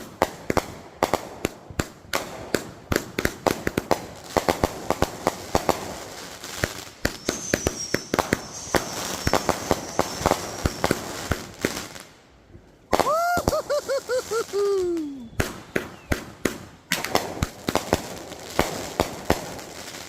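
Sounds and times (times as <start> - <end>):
fireworks crackling pops: 0.0 - 20.0
high firework whistle: 7.1 - 11.3, 12.9 - 16.3.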